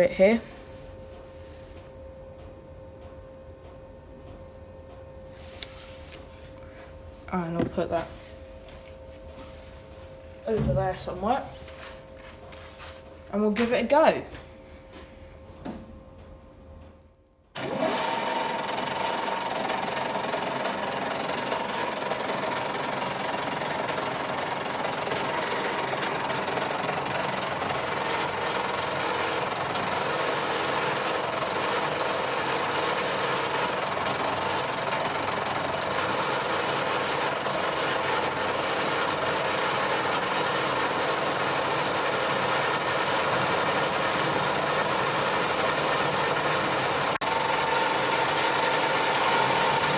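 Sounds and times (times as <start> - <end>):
lathe running: 17.6 - 49.9.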